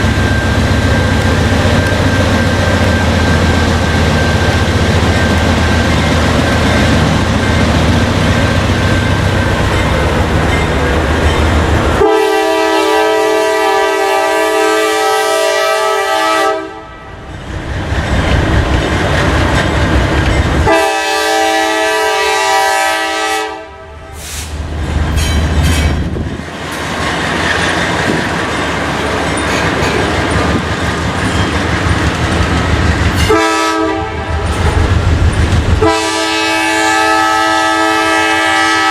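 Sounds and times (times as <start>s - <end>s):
train rumbling: 0.0s - 38.9s
locomotive air horn: 12.0s - 17.2s, 20.6s - 24.5s, 33.2s - 34.5s, 35.8s - 38.9s.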